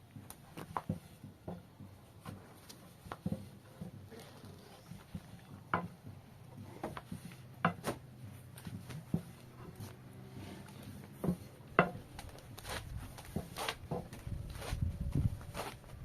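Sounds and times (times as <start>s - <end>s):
sharp knocks and clacks: 5.0s - 10.2s, 10.8s - 12.4s.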